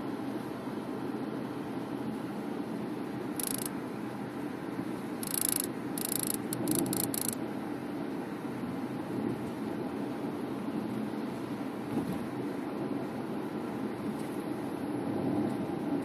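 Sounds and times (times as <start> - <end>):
road noise inside car: 0.0 - 16.0
high-pitched buzzing bursts: 3.4 - 3.7, 5.2 - 7.4.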